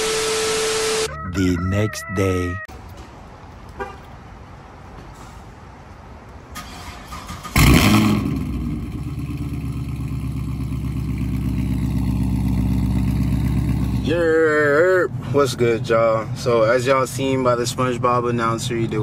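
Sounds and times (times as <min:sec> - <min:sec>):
car engine revving and idling: 0:07.2 - 0:19.0.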